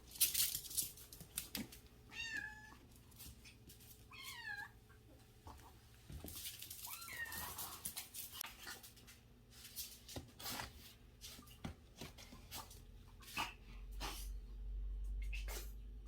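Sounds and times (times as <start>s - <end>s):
clicks and rustles: 0.0s - 1.9s, 6.1s - 10.6s.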